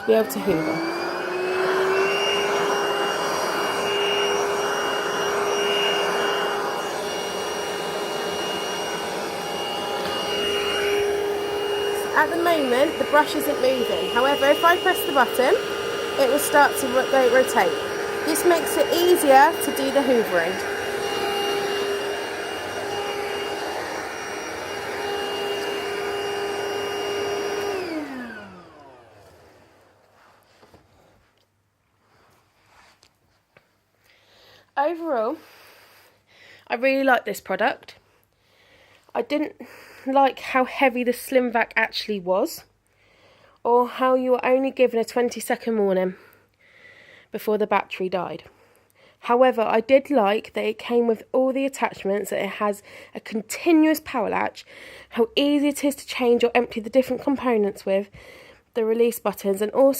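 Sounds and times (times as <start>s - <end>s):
stick vacuum running: 0.0s - 30.1s.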